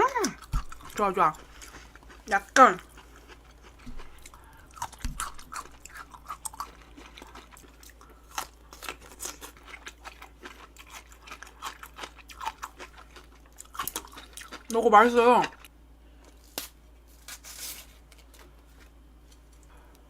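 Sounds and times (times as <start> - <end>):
person chewing with crunches: 0.1 - 14.8.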